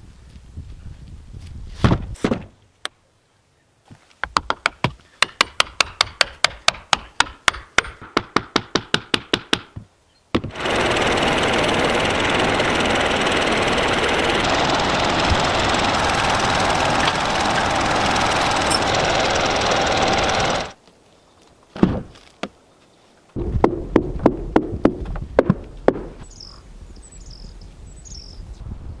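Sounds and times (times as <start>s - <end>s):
loud machine noise: 10.5s - 20.8s
sharp knocks on wood: 23.4s - 26.2s.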